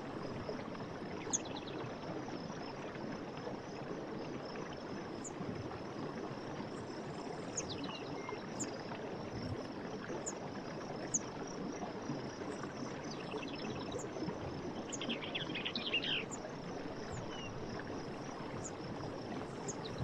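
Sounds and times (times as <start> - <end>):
stream water running: 0.0 - 20.0
small birds chirping: 14.8 - 16.4.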